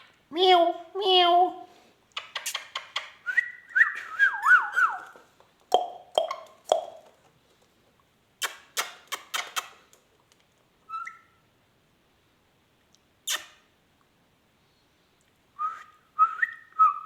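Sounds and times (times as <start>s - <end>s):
parrot sharp calls and chirps: 2.2s - 7.0s, 10.8s - 11.4s
parrot whistling: 3.2s - 5.1s, 10.9s - 11.4s.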